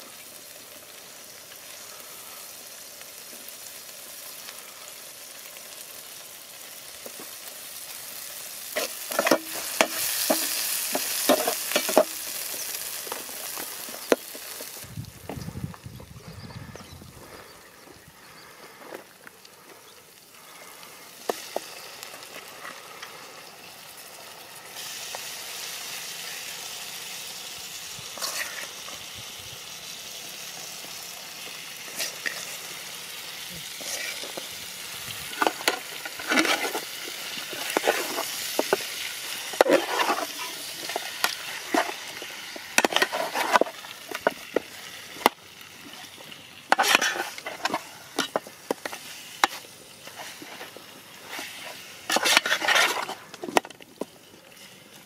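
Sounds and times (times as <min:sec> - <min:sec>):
chicken sizzling in a pot: 0:00.0 - 0:55.0
metal spoon scraping a pot: 0:08.7 - 0:12.2, 0:28.2 - 0:28.7, 0:33.8 - 0:34.5, 0:35.2 - 0:42.1, 0:42.7 - 0:44.4, 0:46.7 - 0:53.3.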